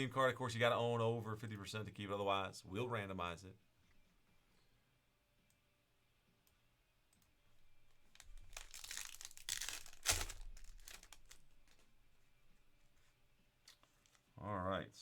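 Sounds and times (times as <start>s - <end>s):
plastic wrapping crinkling: 7.7s - 14.4s
sharp plastic rip: 8.2s - 11.8s.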